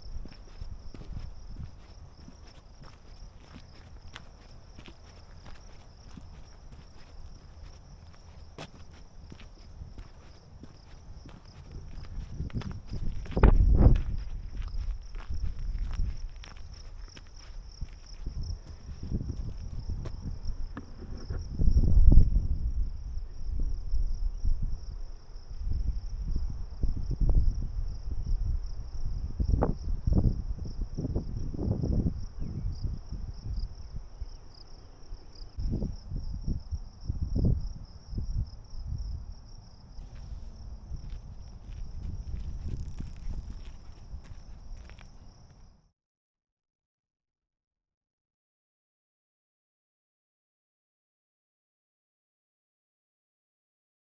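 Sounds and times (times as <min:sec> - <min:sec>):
insects chirring: 0:00.0 - 0:45.8.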